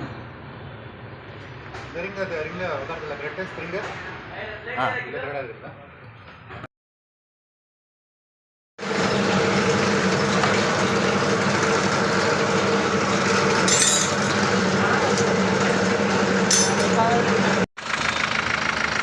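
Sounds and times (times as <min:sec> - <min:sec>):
car engine running with clatter: 0:08.8 - 0:19.0.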